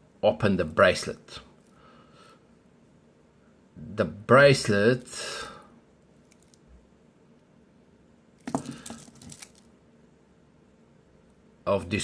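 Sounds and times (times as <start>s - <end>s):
metal watch bracelet clinking: 8.5s - 9.6s.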